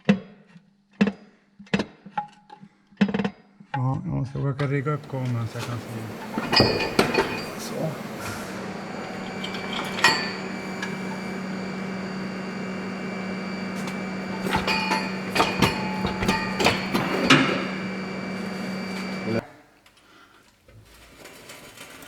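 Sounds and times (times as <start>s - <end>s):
steady electrical hum: 4.7s - 19.4s.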